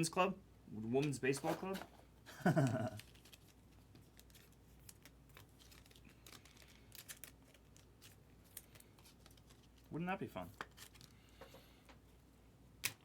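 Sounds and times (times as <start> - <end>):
cards and wrappers rustling: 1.0 - 11.6.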